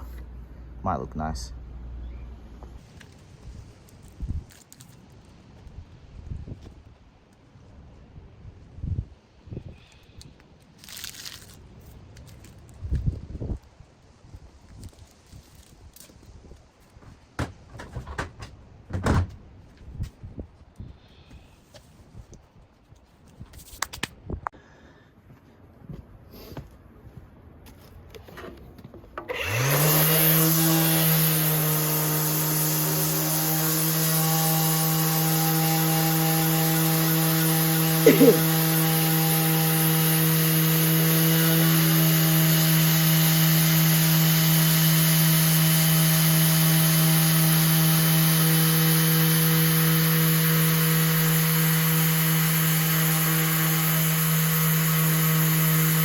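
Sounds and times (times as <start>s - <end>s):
electric sander running: 29.3s - 56.0s
sander chirp: 29.3s - 56.0s.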